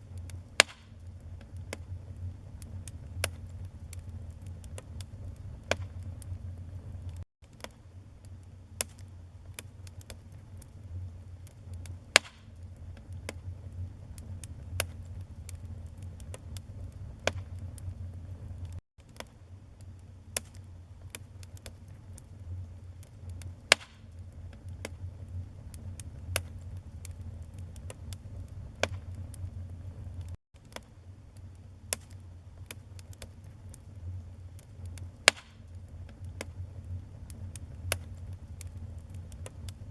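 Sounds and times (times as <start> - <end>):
steady low rumble: 0.0 - 7.2, 10.2 - 18.8, 22.0 - 30.4, 33.5 - 39.9
fire pops: 0.0 - 39.9
wood fire crackling: 0.0 - 39.9.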